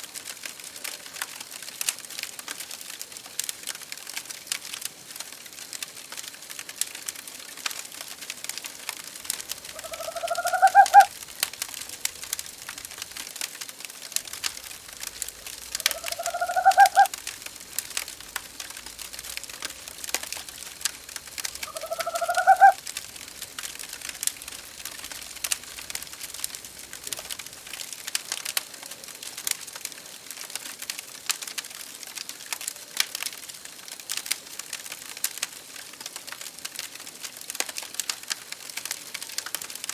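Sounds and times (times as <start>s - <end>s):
wood fire crackling: 0.0s - 39.9s
owl hooting: 9.4s - 11.2s, 14.5s - 17.4s, 21.4s - 22.9s.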